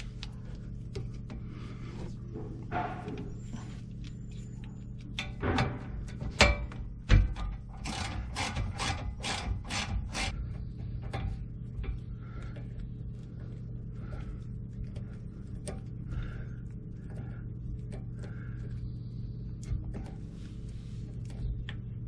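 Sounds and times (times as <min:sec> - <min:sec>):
regular hand tool strokes: 0:07.8 - 0:10.4.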